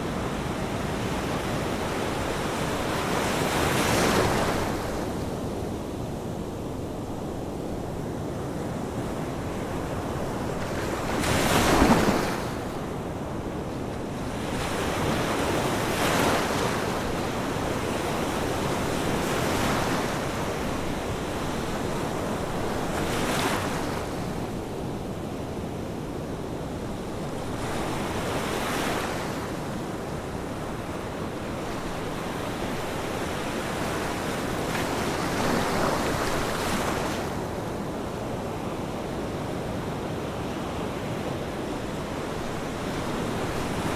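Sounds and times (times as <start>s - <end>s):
waves breaking on shore: 9.3s - 24.7s, 27.3s - 43.9s.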